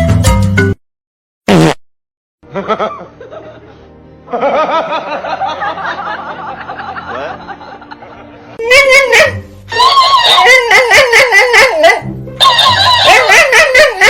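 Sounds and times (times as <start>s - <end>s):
people laughing: 2.4s - 8.6s.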